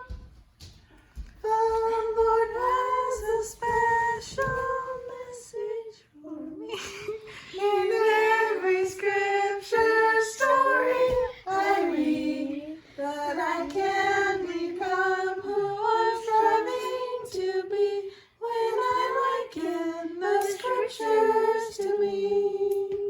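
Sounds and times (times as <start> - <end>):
woman and children singing: 0.0 - 0.3, 1.3 - 23.0.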